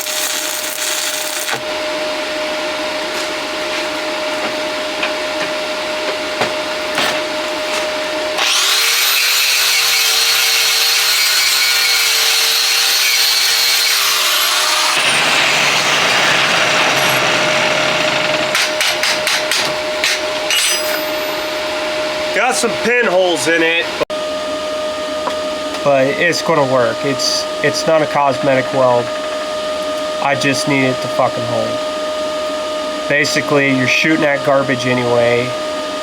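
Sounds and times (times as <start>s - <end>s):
power tool whining: 0.0s - 1.9s, 7.0s - 22.4s
rough grinding: 8.4s - 19.3s.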